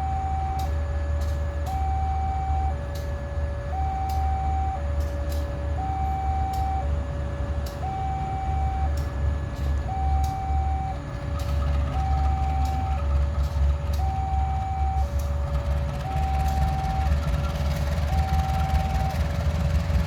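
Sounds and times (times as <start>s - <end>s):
level crossing two-tone alarm: 3.7s - 4.9s, 5.8s - 6.9s, 7.8s - 8.9s, 14.0s - 15.2s.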